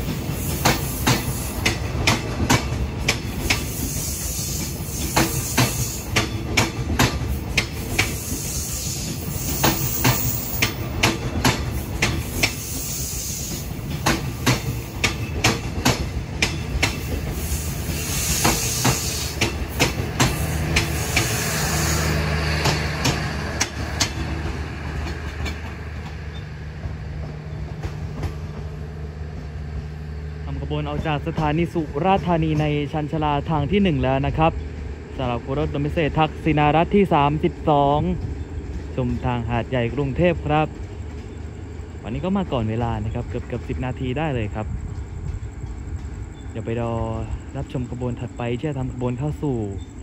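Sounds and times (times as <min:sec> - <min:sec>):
train wheels clicking over rail joints: 0:00.0 - 0:30.1, 0:37.5 - 0:42.0
low train rumble: 0:00.0 - 0:50.0.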